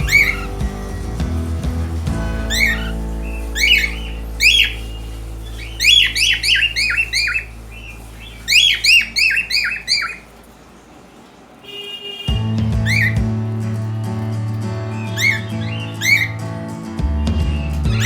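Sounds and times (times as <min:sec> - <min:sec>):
cockatiel squawking: 0:00.0 - 0:00.6, 0:02.3 - 0:10.3, 0:15.1 - 0:16.4
background music of low notes: 0:00.0 - 0:09.0, 0:12.3 - 0:18.0.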